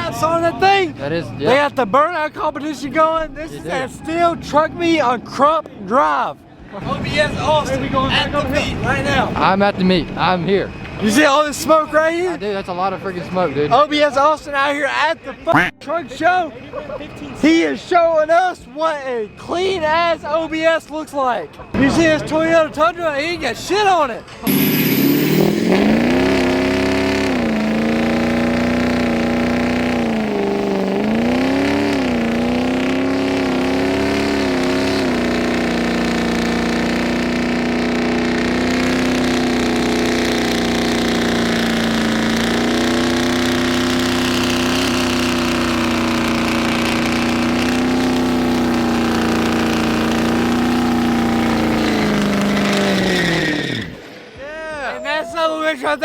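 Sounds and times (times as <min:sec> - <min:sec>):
truck engine revving: 0:24.5 - 0:54.2.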